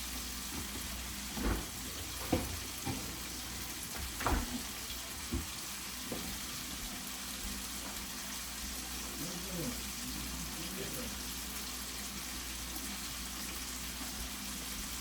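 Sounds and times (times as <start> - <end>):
chicken sizzling in a pot: 0.0 - 15.0
utensil knocking and scraping pot: 0.5 - 6.4.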